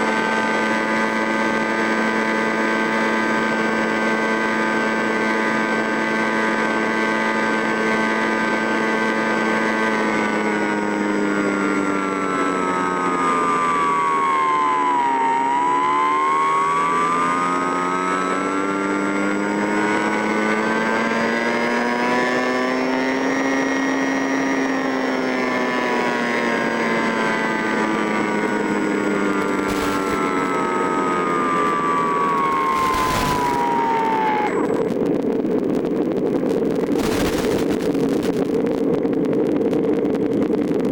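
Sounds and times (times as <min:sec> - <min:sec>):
engine running: 0:00.0 - 0:40.8
brief gusts of noise: 0:32.5 - 0:34.4.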